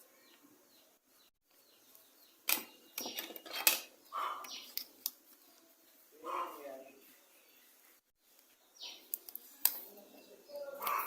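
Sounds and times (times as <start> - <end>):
plastic clicks and snaps: 1.9 - 5.4, 8.4 - 9.9.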